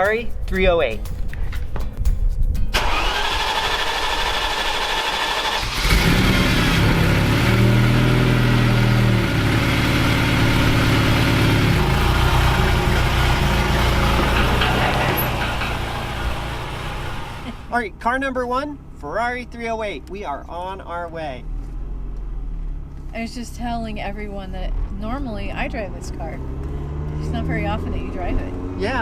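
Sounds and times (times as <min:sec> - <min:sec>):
car engine cranking: 0:00.0 - 0:17.7
car engine starting and idling: 0:01.1 - 0:29.0.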